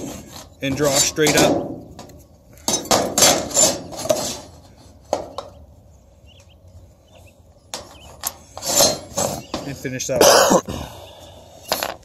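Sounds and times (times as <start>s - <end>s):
speed square scraping sheet metal: 3.1s - 5.0s, 8.5s - 9.6s.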